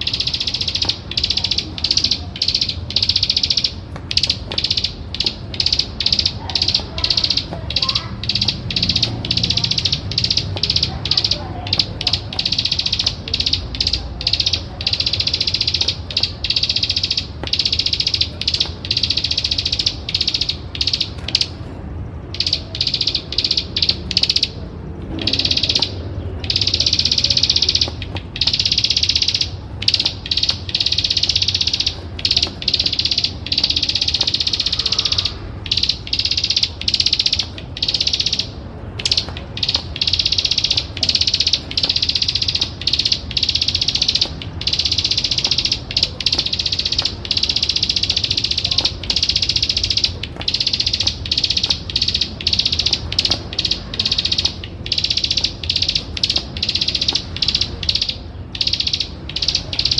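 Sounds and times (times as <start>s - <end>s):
bird clicking trill: 0.0s - 59.9s.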